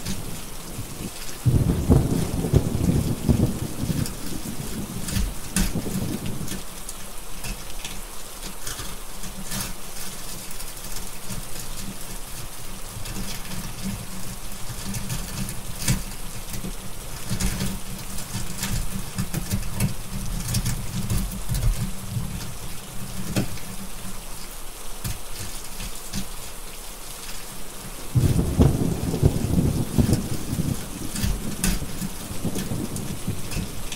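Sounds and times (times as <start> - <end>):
steady rain: 0.0 - 33.9
rolling thunder: 1.4 - 6.5, 28.1 - 33.9.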